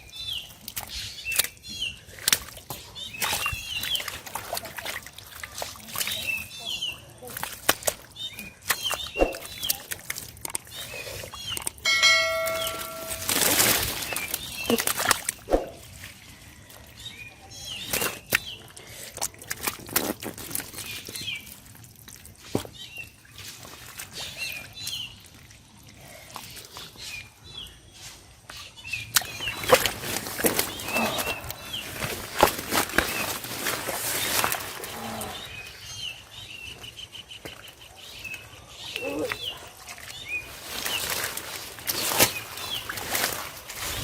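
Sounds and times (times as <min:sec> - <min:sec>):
water splashing and sloshing: 0:00.3 - 0:44.0
bell-like ring: 0:11.9 - 0:13.8.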